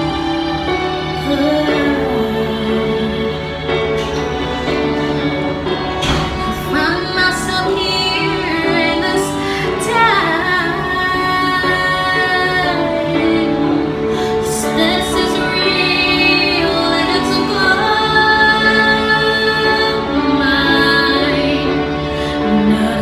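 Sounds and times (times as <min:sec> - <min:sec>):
instrumental accompaniment: 0:00.0 - 0:23.0
woman singing: 0:01.2 - 0:04.8, 0:06.2 - 0:23.0.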